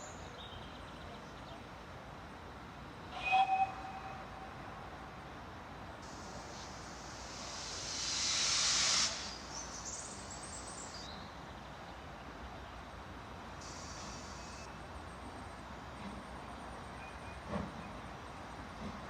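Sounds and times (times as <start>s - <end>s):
loud hiss: 6.0s - 11.0s, 13.6s - 14.7s.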